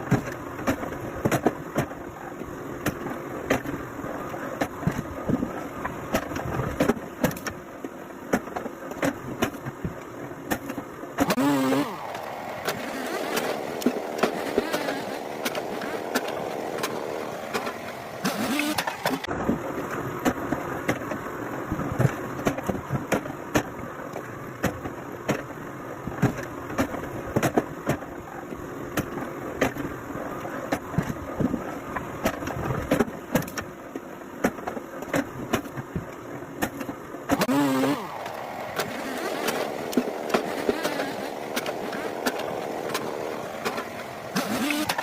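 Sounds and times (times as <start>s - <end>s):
motor running: 11.2s - 19.3s, 37.4s - 45.0s.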